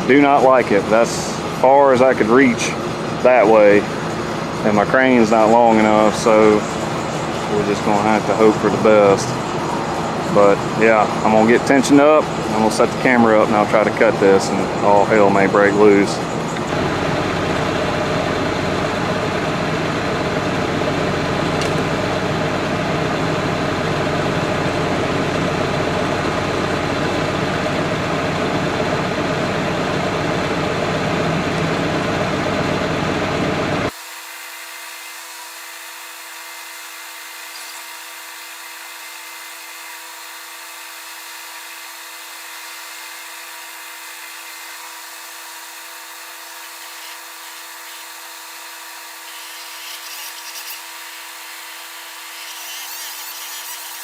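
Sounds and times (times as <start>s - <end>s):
engine running: 0.0s - 34.0s
quiet mechanical hum: 0.0s - 34.0s, 36.0s - 54.0s.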